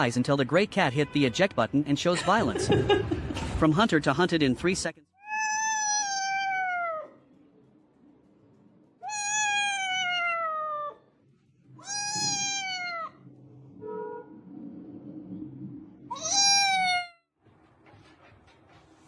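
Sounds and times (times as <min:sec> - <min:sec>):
cat meowing: 0:05.2 - 0:07.2, 0:09.0 - 0:11.0, 0:11.8 - 0:13.3, 0:16.1 - 0:17.2.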